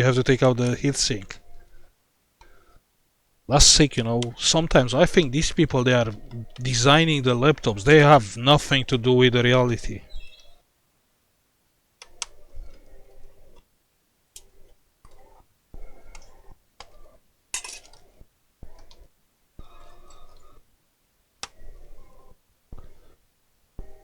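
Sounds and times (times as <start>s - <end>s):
tools tapping laptop parts: 17.6s - 19.0s.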